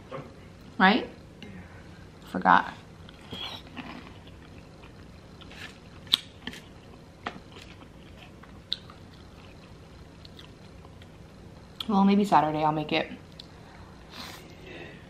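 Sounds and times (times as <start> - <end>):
person chewing food: 3.1 - 11.2.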